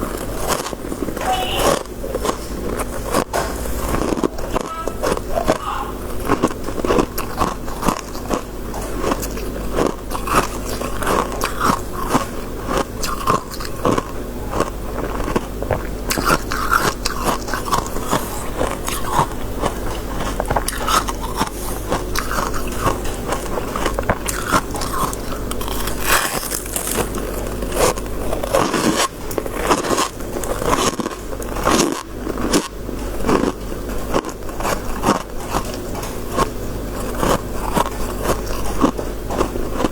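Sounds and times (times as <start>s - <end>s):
icy crunches of chewing frost: 0.0s - 39.9s
steady low hum: 0.0s - 39.9s.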